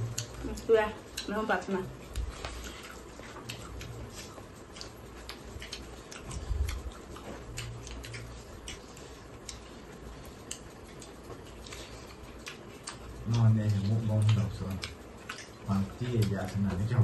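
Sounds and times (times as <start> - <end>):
people chewing food: 0.0 - 17.0.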